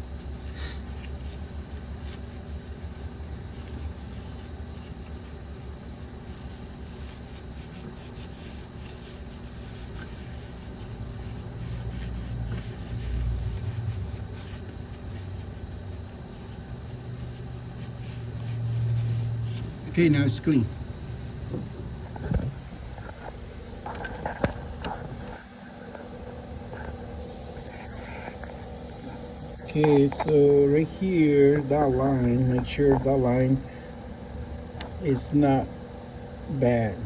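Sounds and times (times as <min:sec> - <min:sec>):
abrasive pad scrubbing: 0:06.8 - 0:21.4, 0:22.5 - 0:37.0.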